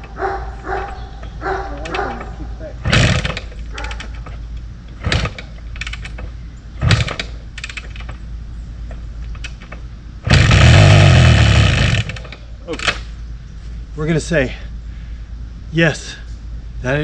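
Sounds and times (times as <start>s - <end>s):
motorcycle engine sputtering: 1.8s - 13.2s
motorcycle engine running loudly: 10.2s - 12.3s.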